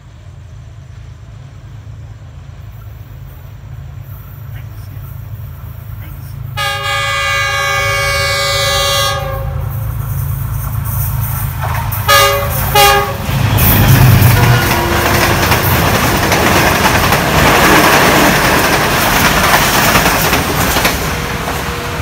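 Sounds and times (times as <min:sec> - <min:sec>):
train wheels rushing on rails: 0:00.0 - 0:22.0
locomotive horn: 0:06.6 - 0:09.9, 0:12.0 - 0:15.8.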